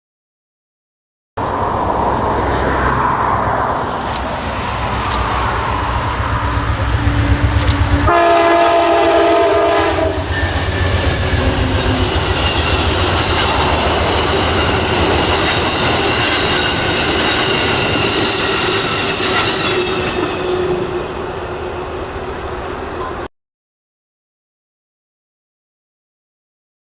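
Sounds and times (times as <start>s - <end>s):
low engine rumble: 1.4s - 9.1s
locomotive horn chord: 1.4s - 23.3s
train wheels clacking on rails: 1.4s - 23.3s.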